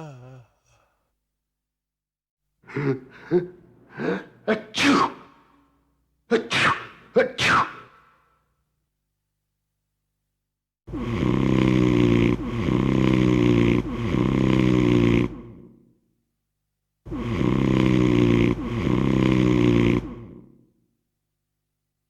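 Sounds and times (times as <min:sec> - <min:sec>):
person snoring: 0:00.0 - 0:01.0, 0:10.9 - 0:15.7, 0:17.1 - 0:20.6.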